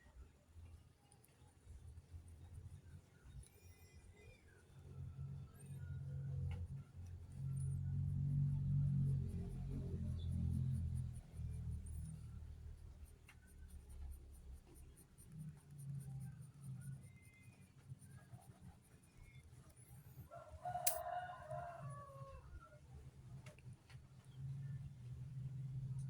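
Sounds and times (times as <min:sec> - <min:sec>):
faint low hum: 0:00.0 - 0:26.0
rooster crowing: 0:20.3 - 0:22.6.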